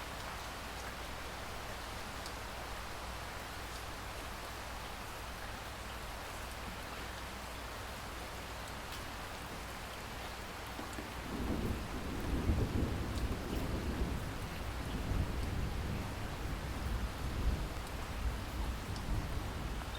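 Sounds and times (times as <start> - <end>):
rain falling: 0.0 - 19.9
thunder rumble: 11.2 - 19.9.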